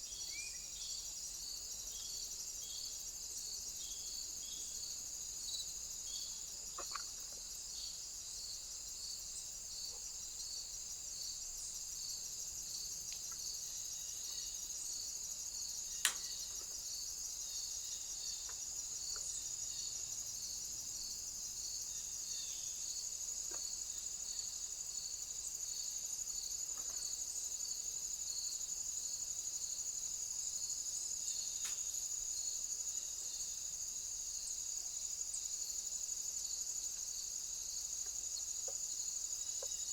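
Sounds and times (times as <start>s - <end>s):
crickets chirring: 0.0s - 39.9s
high continuous insect trill: 0.0s - 39.9s
pulsing insect chirp: 0.0s - 39.9s
faint ticks: 13.0s - 13.5s, 31.6s - 31.9s, 38.0s - 38.9s
sharp click: 16.0s - 16.3s.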